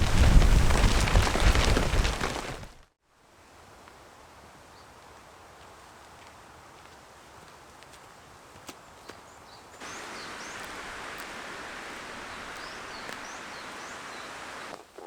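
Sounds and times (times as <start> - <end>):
small birds chirping: 9.0 - 14.8
steady rushing noise: 9.8 - 14.7.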